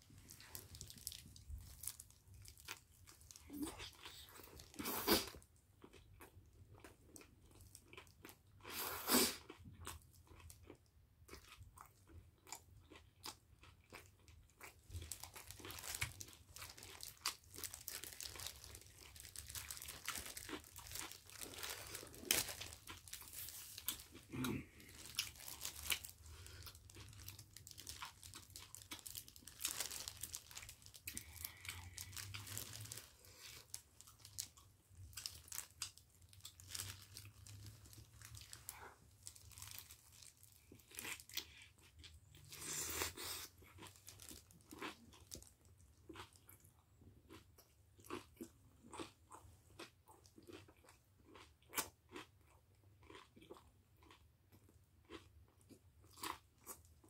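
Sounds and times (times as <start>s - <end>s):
plastic gloves crinkling: 0.0s - 5.2s, 15.0s - 41.3s
chewing and mouth clicks: 46.0s - 56.8s.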